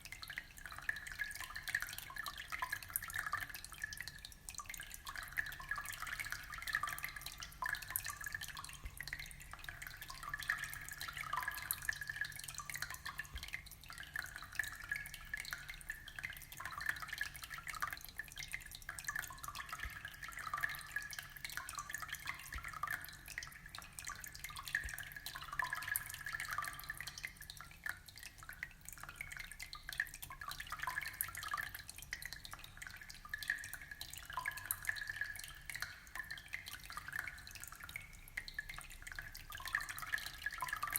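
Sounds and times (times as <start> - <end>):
aquarium water trickling: 0.0 - 40.9.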